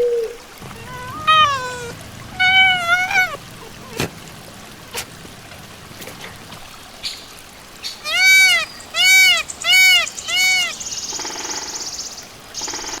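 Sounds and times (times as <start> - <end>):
farm animal calling: 0.7 - 4.2, 7.9 - 10.8.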